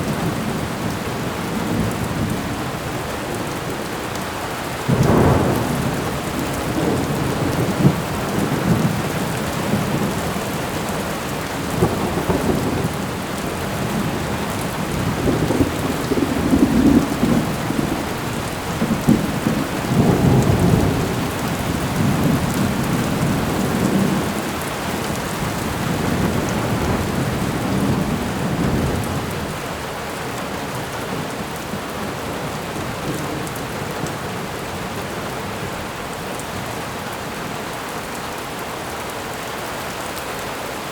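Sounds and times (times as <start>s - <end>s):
steady rain: 0.0s - 40.9s
thunder rolling: 4.8s - 10.9s, 11.7s - 29.4s.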